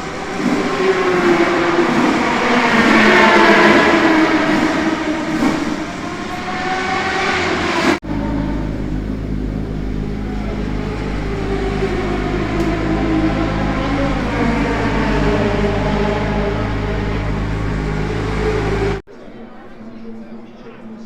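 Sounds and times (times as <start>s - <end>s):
racing motorcycle engine: 0.0s - 19.0s.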